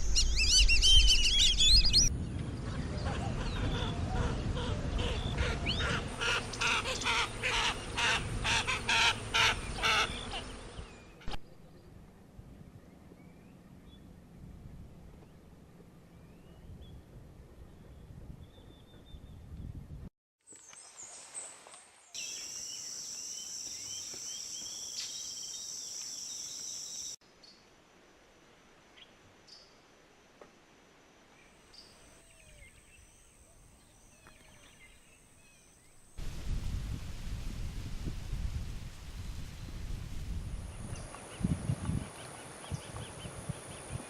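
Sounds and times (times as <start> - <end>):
bird chirping calls: 0.0 - 2.1
bird harsh raspy calls: 3.0 - 11.4.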